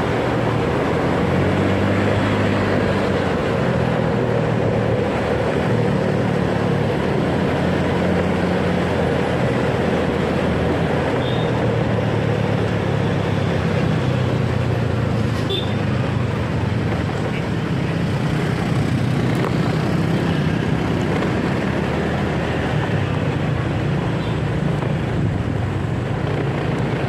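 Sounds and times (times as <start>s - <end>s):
road noise rushing: 0.0s - 27.0s.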